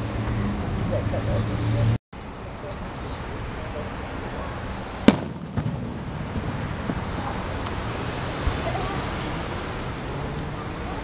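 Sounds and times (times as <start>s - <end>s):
fireworks exploding: 4.6s - 9.0s.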